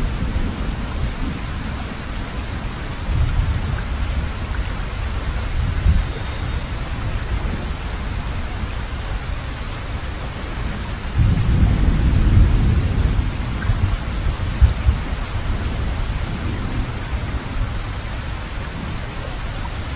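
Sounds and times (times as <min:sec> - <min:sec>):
heavy rain: 0:00.0 - 0:19.9
thunder rumbling: 0:10.3 - 0:19.4.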